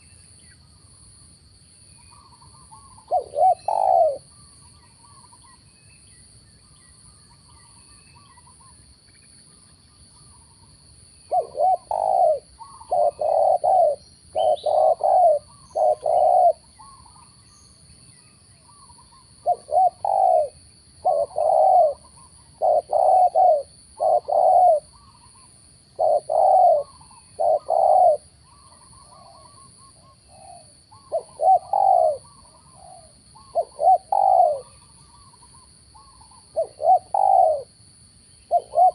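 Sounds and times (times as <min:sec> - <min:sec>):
faint bird chirps: 0:00.0 - 0:38.9
dove cooing: 0:02.1 - 0:04.4, 0:11.3 - 0:17.2, 0:18.7 - 0:37.7, 0:38.5 - 0:38.9.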